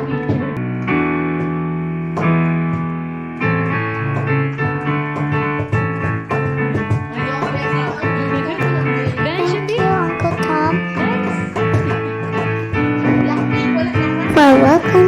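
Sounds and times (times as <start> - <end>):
keyboard playing chords: 9.4 - 10.8, 14.3 - 15.0.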